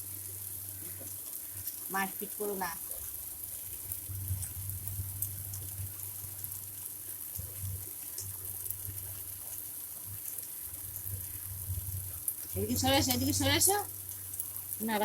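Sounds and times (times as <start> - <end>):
water running: 0.0 - 15.0
faint ticks: 7.3 - 13.3.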